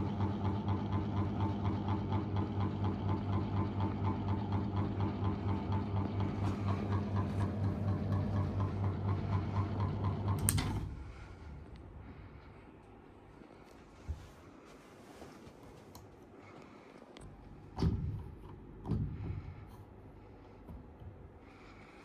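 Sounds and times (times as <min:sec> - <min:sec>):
ceiling fan motor hum: 0:00.0 - 0:22.0
fan switch click: 0:10.3 - 0:11.1.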